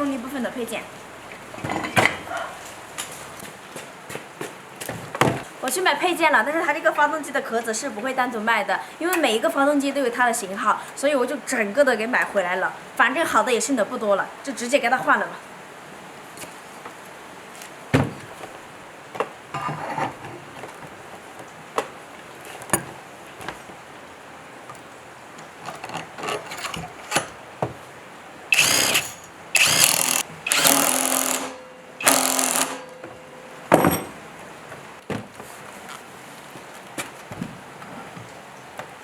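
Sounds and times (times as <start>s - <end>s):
tools knocking and clicking: 25.6s - 27.8s, 28.6s - 34.2s
power drill bursts: 28.5s - 33.4s.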